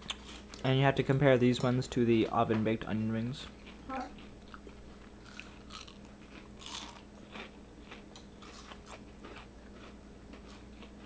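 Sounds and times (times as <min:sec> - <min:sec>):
crisp chewing crunches: 0:03.6 - 0:11.0.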